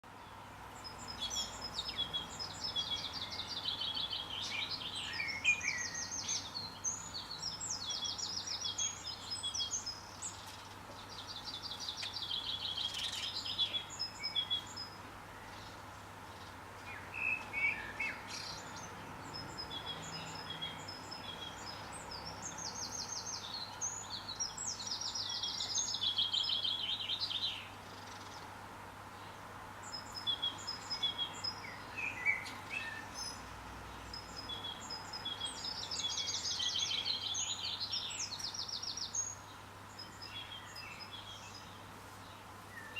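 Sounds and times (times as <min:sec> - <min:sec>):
songbird trilling: 0:34.1 - 0:39.4.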